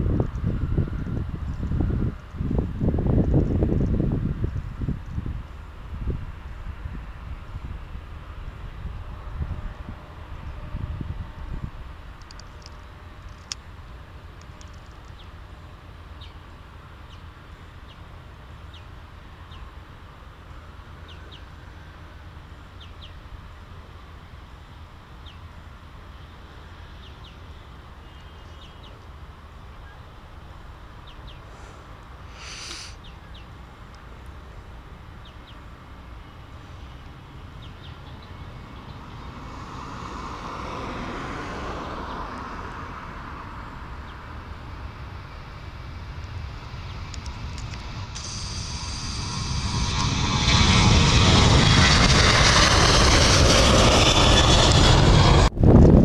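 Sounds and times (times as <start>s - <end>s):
distant engine: 35.4s - 56.0s
low rumble: 44.5s - 56.0s
brief sharp noise: 48.0s - 52.5s.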